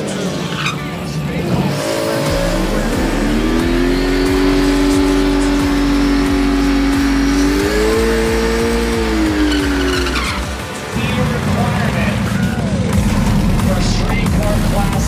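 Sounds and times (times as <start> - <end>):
drag car engine revving: 0.0 - 15.0.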